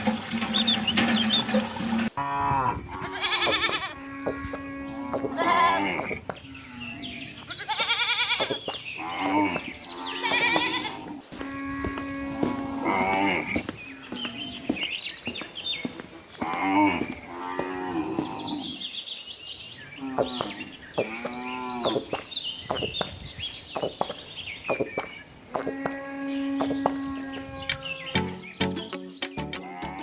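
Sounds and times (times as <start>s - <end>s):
cattle mooing: 2.0s - 7.9s, 9.0s - 14.6s, 16.4s - 18.8s, 25.7s - 28.1s.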